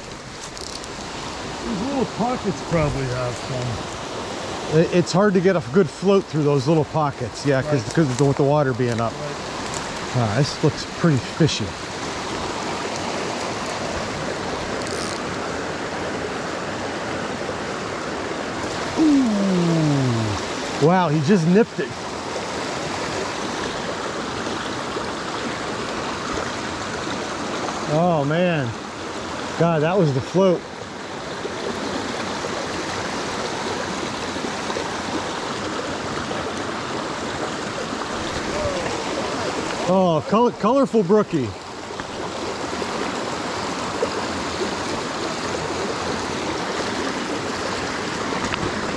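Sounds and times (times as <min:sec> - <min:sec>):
stream tumbling over rocks: 0:00.0 - 0:48.9.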